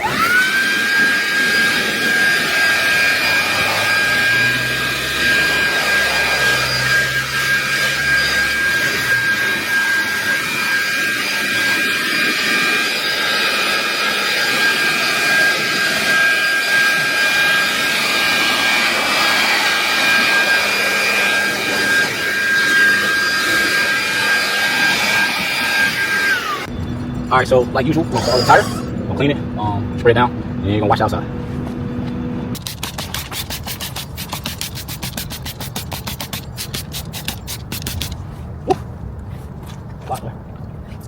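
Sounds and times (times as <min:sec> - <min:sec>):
blower high whine: 0:00.0 - 0:26.9, 0:28.1 - 0:29.1.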